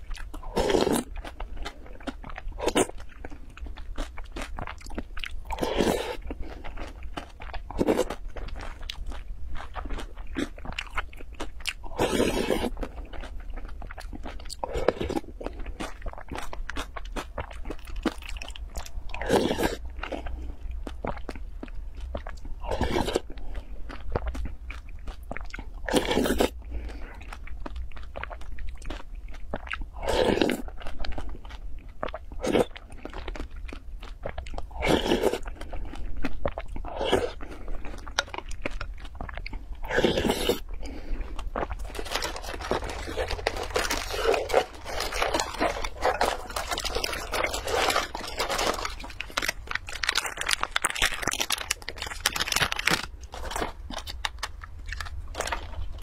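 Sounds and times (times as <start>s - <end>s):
chewing and wet mouth sounds: 0.0s - 56.0s.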